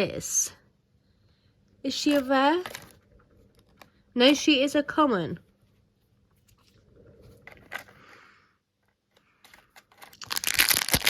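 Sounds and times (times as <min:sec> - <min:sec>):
soft rustling: 0:05.3 - 0:10.2
crinkly plastic bag tearing: 0:09.8 - 0:11.0.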